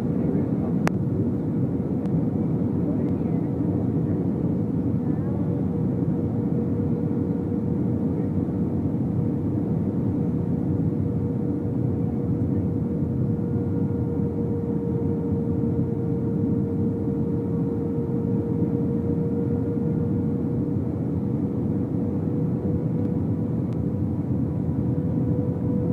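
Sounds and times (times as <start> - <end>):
airplane cabin airflow and engine: 0.0 - 25.9.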